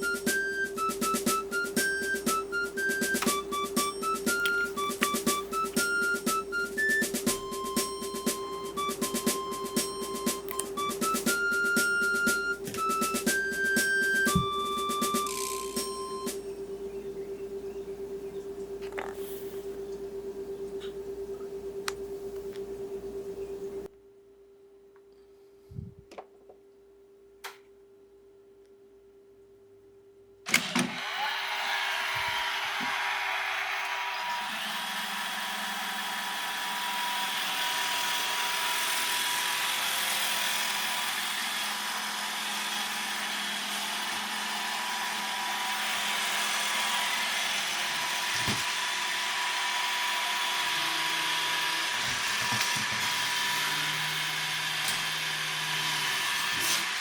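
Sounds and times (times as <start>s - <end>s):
robot vacuum cleaner running: 0.0s - 17.2s, 30.5s - 57.0s.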